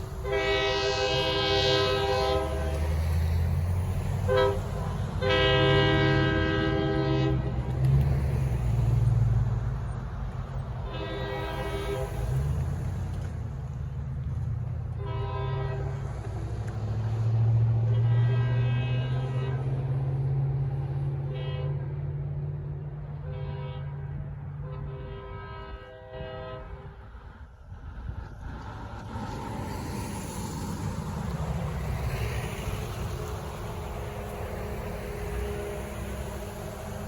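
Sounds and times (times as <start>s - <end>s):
diesel engine rumble: 0.0s - 37.0s
locomotive horn blasts: 0.2s - 3.3s, 4.2s - 7.8s, 10.8s - 12.8s, 14.9s - 16.5s, 17.2s - 20.2s, 21.0s - 22.2s, 23.2s - 27.0s, 32.7s - 37.0s.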